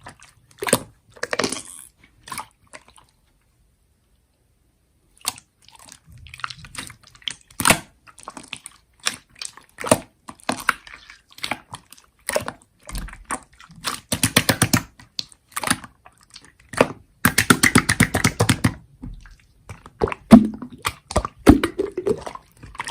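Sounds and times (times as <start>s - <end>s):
slime squished by hand: 5.1s - 22.9s.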